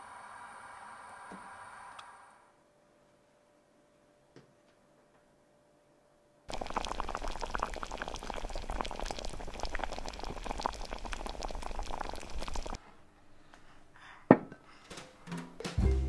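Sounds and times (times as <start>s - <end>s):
curry bubbling in a pot: 6.5s - 12.8s.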